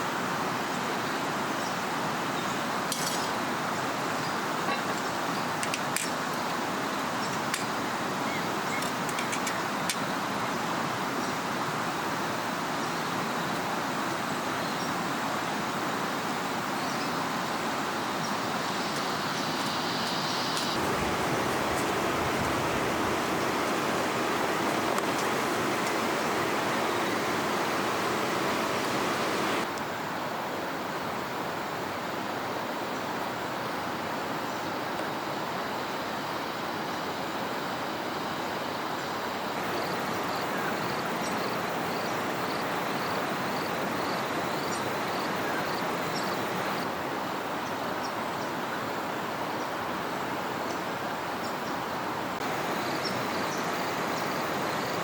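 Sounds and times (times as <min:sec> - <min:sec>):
flowing river water: 0:20.6 - 0:32.3, 0:37.8 - 0:55.0.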